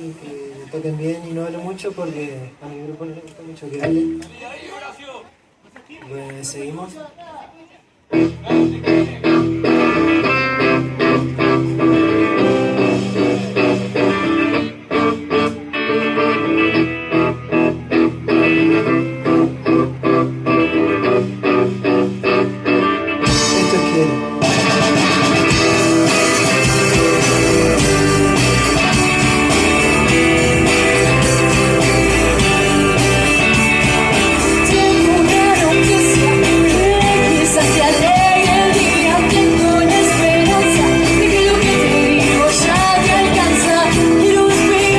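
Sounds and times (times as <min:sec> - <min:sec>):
guitar playing choppy riff: 0:08.1 - 0:44.9
rock band playing: 0:08.1 - 0:44.9.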